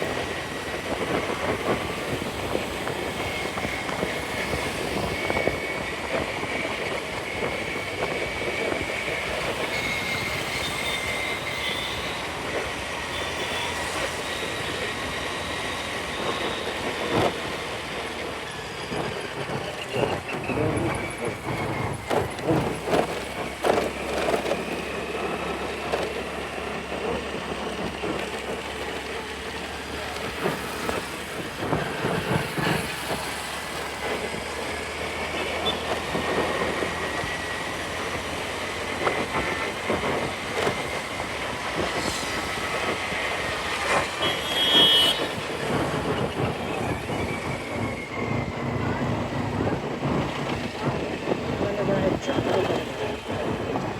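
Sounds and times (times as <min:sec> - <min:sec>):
road and wind noise: 0:00.0 - 0:53.9
scooter engine running: 0:19.6 - 0:53.9.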